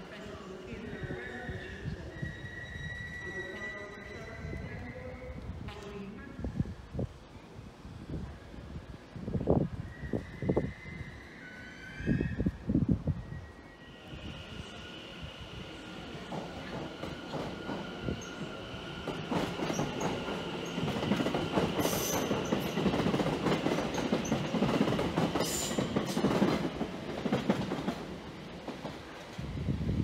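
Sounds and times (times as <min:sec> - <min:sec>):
high wheel squeals: 0:02.1 - 0:05.0
train wheels rumbling on rails: 0:15.3 - 0:30.0.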